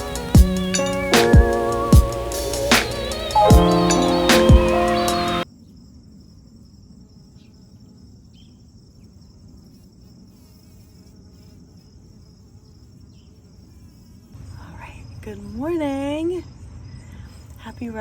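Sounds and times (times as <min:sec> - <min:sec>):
background music: 0:00.0 - 0:05.4
insects chirring: 0:00.0 - 0:15.2.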